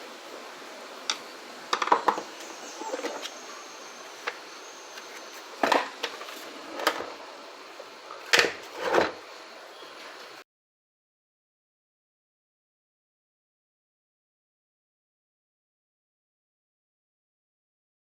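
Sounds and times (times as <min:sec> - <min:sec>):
steady hiss: 0:00.0 - 0:10.4
plastic parts clicking and knocking: 0:01.7 - 0:02.3.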